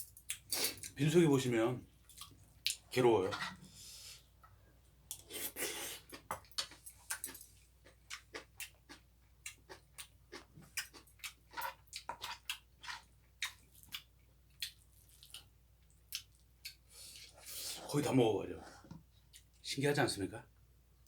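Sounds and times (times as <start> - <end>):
person chewing wetly: 5.1 - 17.4.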